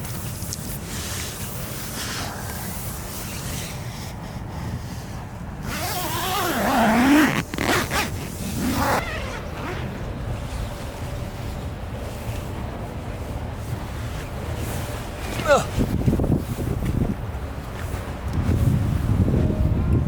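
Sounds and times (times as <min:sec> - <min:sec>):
low wind rumble: 0:00.0 - 0:20.0
zipper being pulled: 0:05.6 - 0:09.9.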